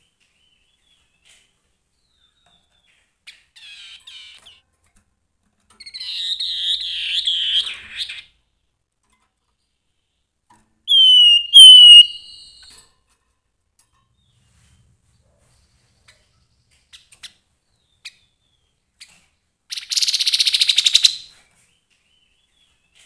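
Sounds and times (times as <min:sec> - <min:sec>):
bird whistles falling in pitch: 0:10.9 - 0:12.7
bird chirps and warbled notes: 0:10.9 - 0:12.8.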